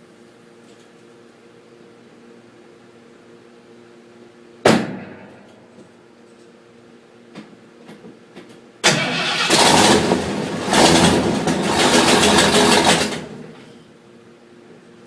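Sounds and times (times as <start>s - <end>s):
pickup engine starting: 8.8s - 13.8s.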